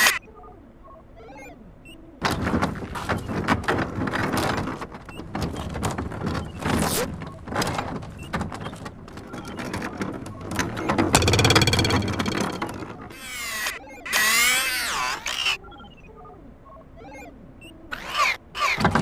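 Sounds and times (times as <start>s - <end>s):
clattering knocks and rattles: 2.2s - 13.8s, 18.8s - 19.0s.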